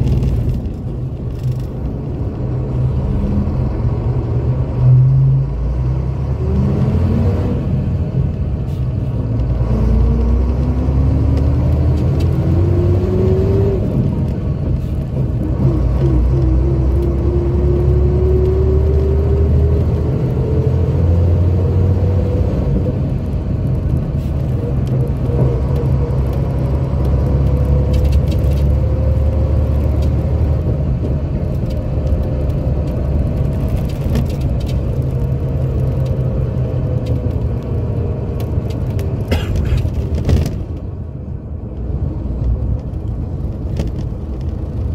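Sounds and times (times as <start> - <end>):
diesel coach engine rumbling: 0.0 - 44.9.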